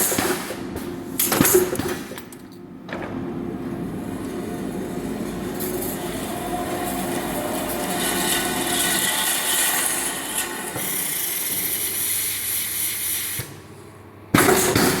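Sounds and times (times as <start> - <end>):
machine hissing: 3.2 - 13.8.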